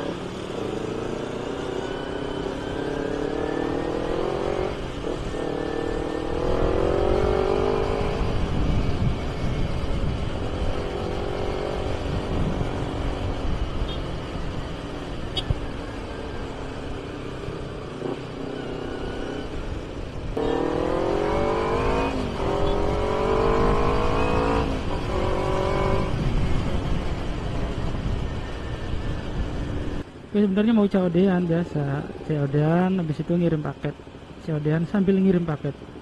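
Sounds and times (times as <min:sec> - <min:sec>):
motorcycle engine accelerating: 0:00.0 - 0:30.0
wind rush: 0:04.6 - 0:15.7, 0:22.0 - 0:30.0.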